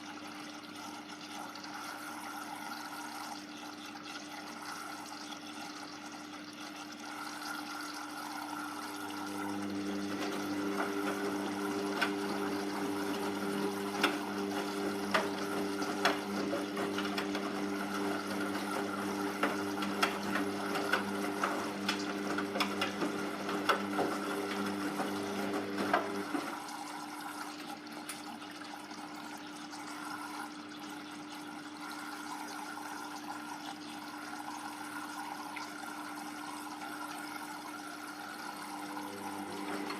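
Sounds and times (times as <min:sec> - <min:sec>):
washing machine drain pump humming: 0:00.0 - 0:39.9
water gurgling and splashing: 0:00.0 - 0:39.9.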